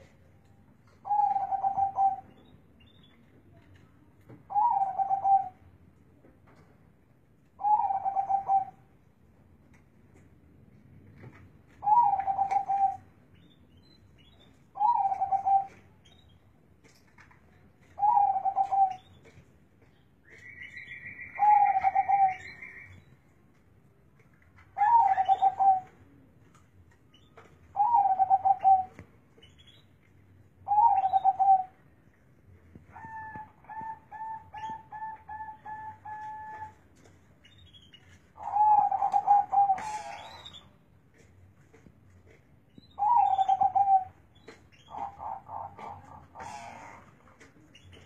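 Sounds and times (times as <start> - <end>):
dove cooing: 1.0 - 2.3, 4.5 - 5.6, 7.6 - 8.8, 11.8 - 13.0, 14.8 - 15.8, 18.0 - 19.0, 21.3 - 22.6, 24.8 - 25.9, 27.8 - 29.0, 30.7 - 31.7, 32.9 - 36.8, 38.4 - 40.5, 43.0 - 44.2, 44.9 - 47.2.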